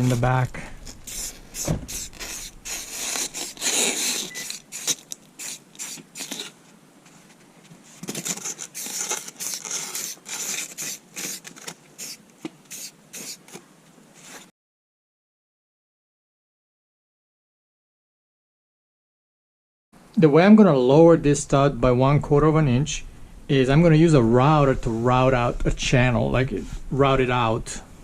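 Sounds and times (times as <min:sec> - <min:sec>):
spray paint hissing: 0:01.0 - 0:06.5, 0:08.7 - 0:13.6.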